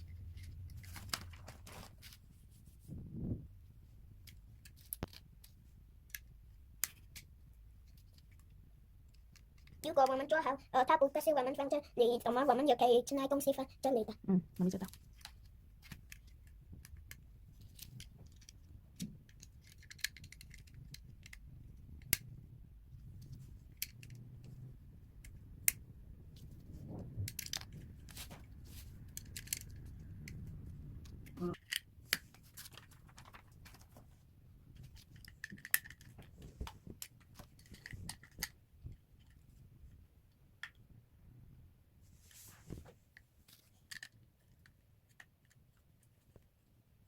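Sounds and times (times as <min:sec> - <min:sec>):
plastic bricks clicking and clattering: 0:14.7 - 0:21.4, 0:27.3 - 0:27.8, 0:29.1 - 0:30.4, 0:34.8 - 0:36.2.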